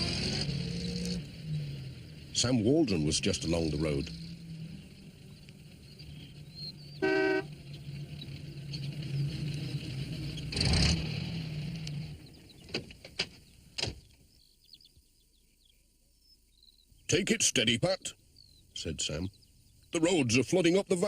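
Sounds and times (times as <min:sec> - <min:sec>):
van engine running: 0:00.0 - 0:13.8
short horn toot: 0:07.0 - 0:07.5.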